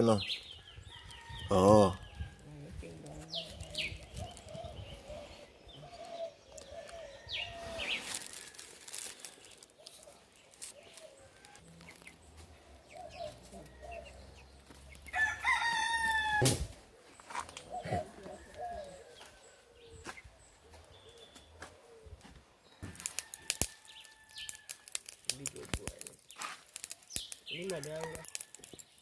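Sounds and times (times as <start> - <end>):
rooster crowing: 15.1 - 16.6.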